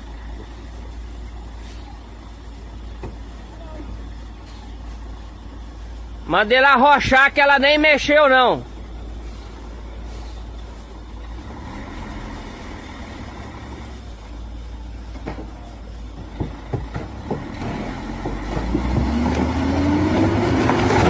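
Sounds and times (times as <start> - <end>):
truck engine revving: 0.0 - 21.0
sharp knocks: 16.2 - 19.5.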